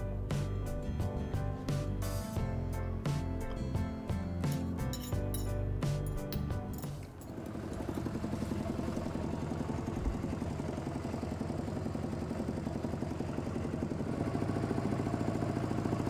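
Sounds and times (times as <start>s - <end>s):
small engine chugging: 7.2s - 16.0s.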